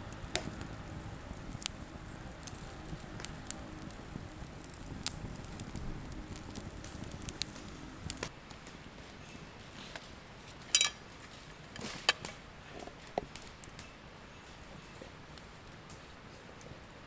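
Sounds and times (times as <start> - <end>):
low background hiss: 0.0 - 8.4.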